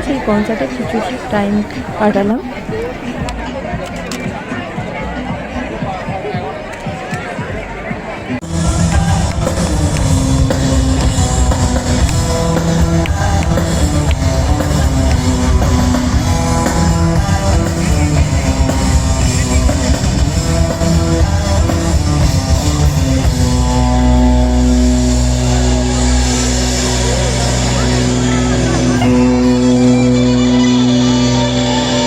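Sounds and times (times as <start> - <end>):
live rock band playing: 8.4 - 32.0.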